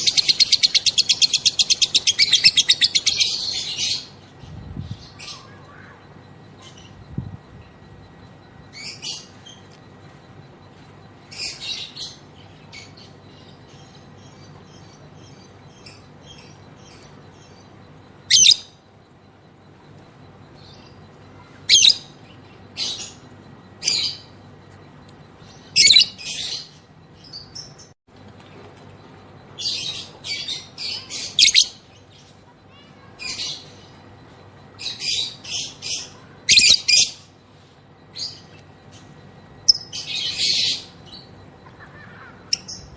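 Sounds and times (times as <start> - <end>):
lovebird chattering calls: 0.0 - 4.2.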